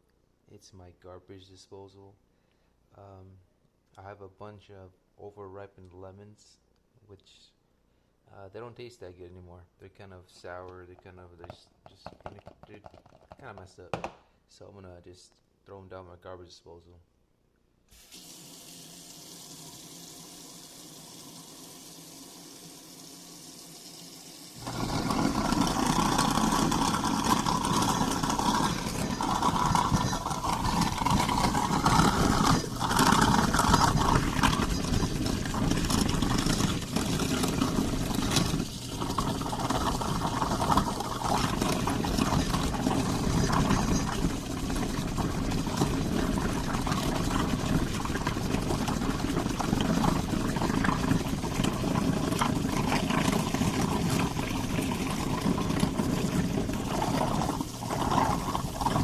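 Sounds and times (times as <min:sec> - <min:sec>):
water running into sink: 0:18.0 - 0:59.0
garbage disposal grinding: 0:18.2 - 0:59.0.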